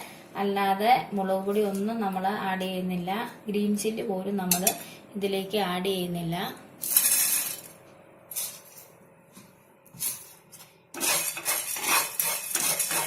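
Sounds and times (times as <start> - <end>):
metal spoon clinking on pan: 4.5 - 4.8
seeds scraping in pan: 6.8 - 7.7, 11.0 - 13.0.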